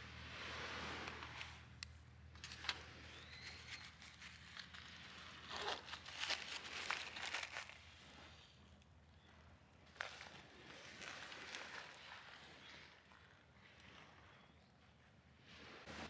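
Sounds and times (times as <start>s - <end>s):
gear crinkling and rustling: 2.3s - 8.5s.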